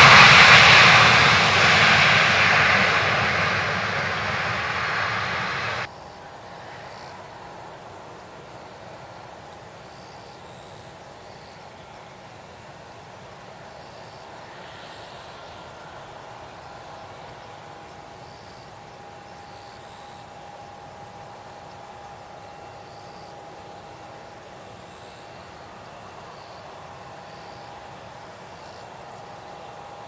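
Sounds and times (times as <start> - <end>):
short insect chirps: 0.0 - 5.8
insects chirping chorus: 0.0 - 5.9.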